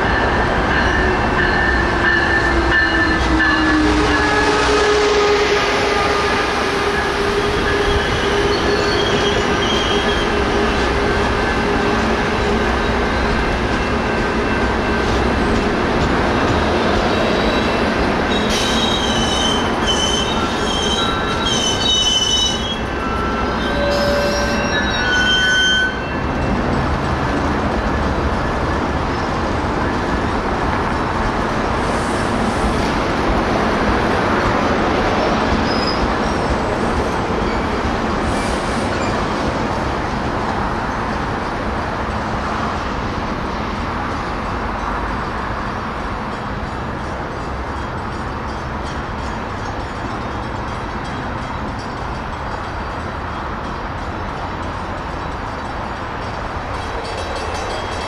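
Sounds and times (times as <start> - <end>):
train rumbling along rails: 0.0 - 58.0
wheel squeal: 17.4 - 26.2.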